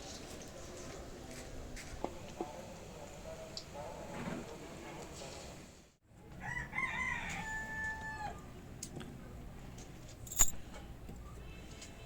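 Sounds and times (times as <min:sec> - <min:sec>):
rooster crowing: 0:06.4 - 0:08.5.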